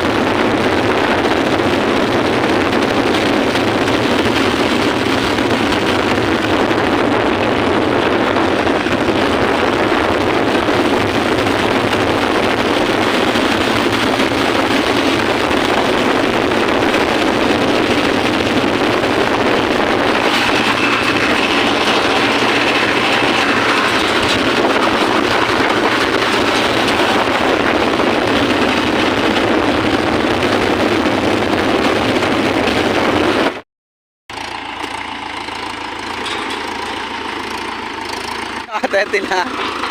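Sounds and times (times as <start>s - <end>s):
tractor diesel engine drone: 0.0s - 33.6s, 34.3s - 39.9s.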